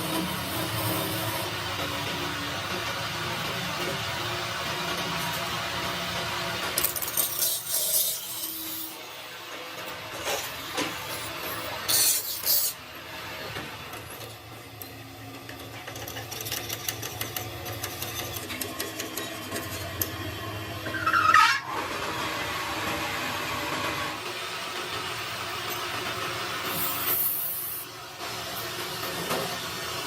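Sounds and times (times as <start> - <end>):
metal scraping and rasping: 6.7 - 9.0, 10.2 - 12.8
brief squeal: 20.8 - 21.8.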